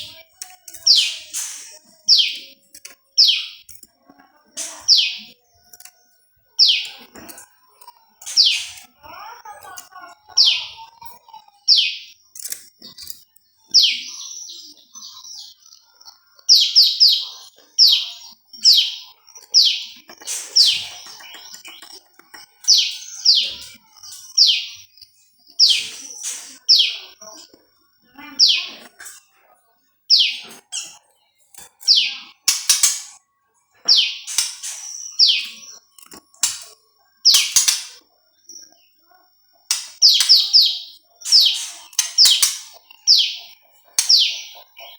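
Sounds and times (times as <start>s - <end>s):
bird calling sharp high notes: 32.5s - 33.2s, 34.0s - 35.7s, 37.3s - 38.0s, 39.7s - 43.4s, 44.0s - 44.5s.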